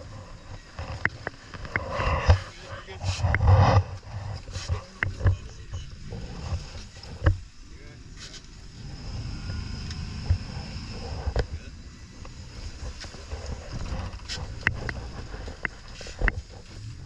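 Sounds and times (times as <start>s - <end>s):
wind: 0.0s - 17.0s
sharp clicks and knocks: 0.5s - 2.5s, 12.2s - 16.6s.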